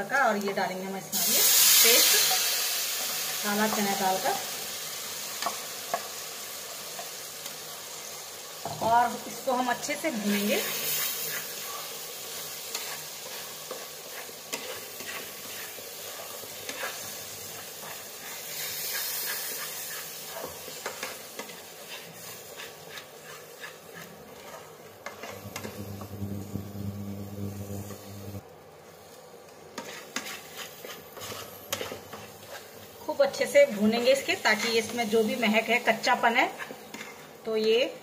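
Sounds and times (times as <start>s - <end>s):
paste sizzling in hot oil: 1.1s - 28.4s, 29.0s - 37.4s
wooden spatula scraping a pan: 10.1s - 28.4s, 29.7s - 33.1s, 36.5s - 37.4s
low steady hum: 25.2s - 28.4s.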